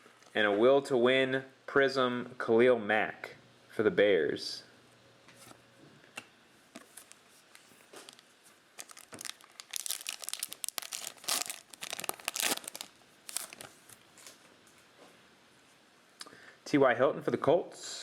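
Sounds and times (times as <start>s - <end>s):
wrapper tearing and crinkling: 8.0s - 8.2s, 8.8s - 14.3s.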